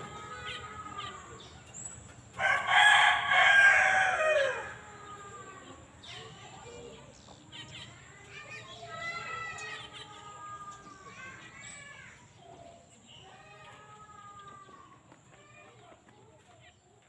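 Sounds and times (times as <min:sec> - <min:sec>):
rooster crowing: 0:02.4 - 0:05.4.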